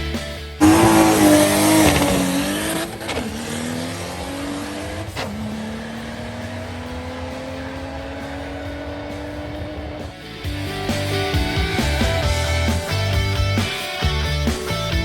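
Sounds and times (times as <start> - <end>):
car engine accelerating hard: 0.6 - 10.6.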